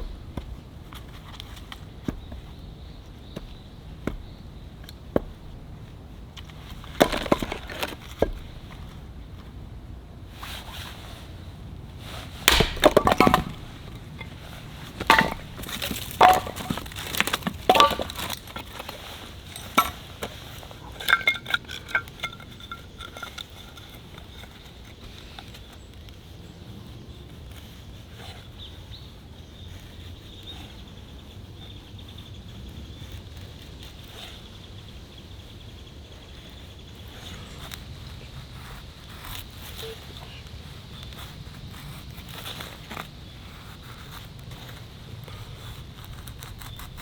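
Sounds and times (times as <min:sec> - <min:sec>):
hard objects clinking and knocking: 0:06.8 - 0:08.7, 0:12.5 - 0:23.5.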